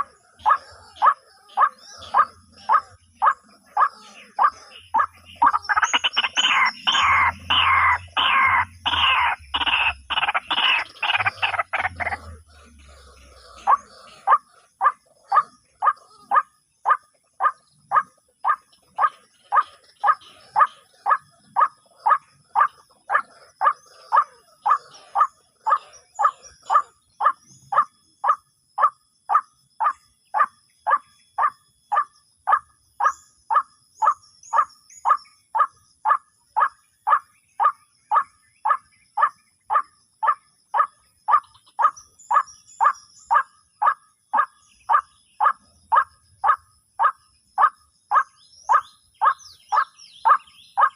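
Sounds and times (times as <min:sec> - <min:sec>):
bird croaking calls: 0:00.0 - 0:50.9.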